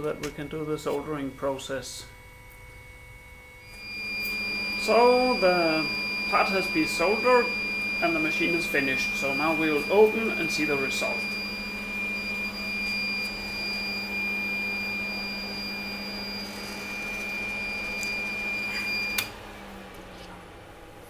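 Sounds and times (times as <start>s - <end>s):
heater switching off click: 0.0s - 1.1s, 17.9s - 20.4s
heater humming with high whine: 0.0s - 21.0s.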